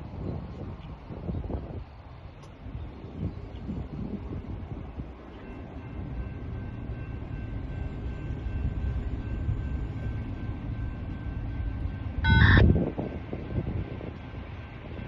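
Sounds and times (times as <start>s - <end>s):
freight train rumbling: 0.0s - 15.0s
train horn honk: 12.2s - 12.7s.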